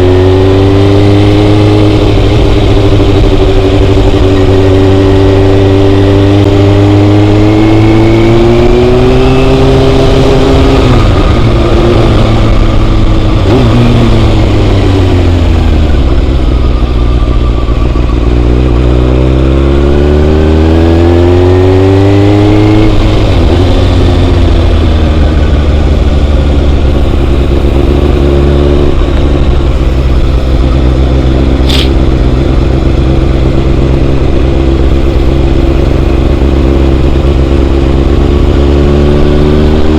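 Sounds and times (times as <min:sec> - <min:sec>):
motorcycle engine accelerating: 0:00.0 - 0:39.9
sharp click: 0:31.6 - 0:32.0.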